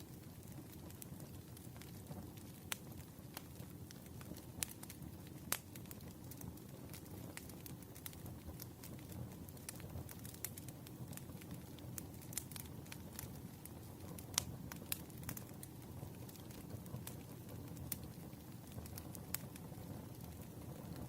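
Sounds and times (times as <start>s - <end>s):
campfire crackling and popping: 0.0s - 21.0s
low rumble of burning wood: 0.0s - 21.0s.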